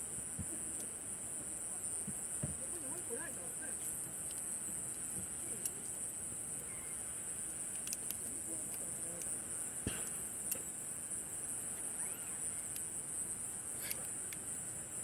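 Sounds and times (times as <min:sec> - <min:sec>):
night insects chirping: 0:00.0 - 0:15.0
campfire crackling pops: 0:07.6 - 0:10.8.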